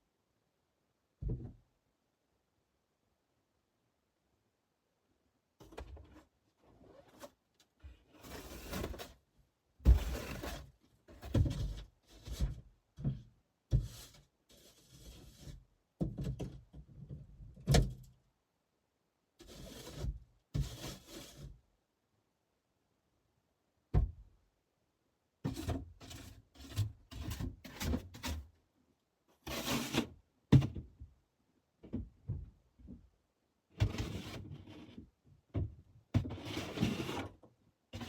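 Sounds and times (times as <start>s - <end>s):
irregular thumps and knocks: 1.2s - 1.7s.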